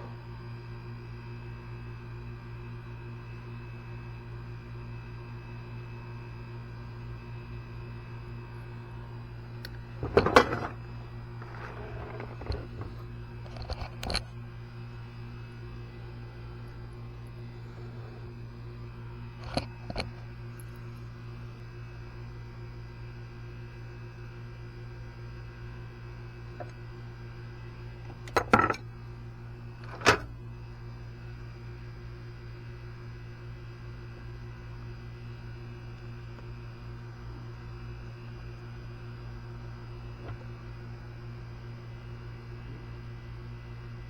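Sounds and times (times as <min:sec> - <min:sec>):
low electrical hum: 0:00.0 - 0:44.0.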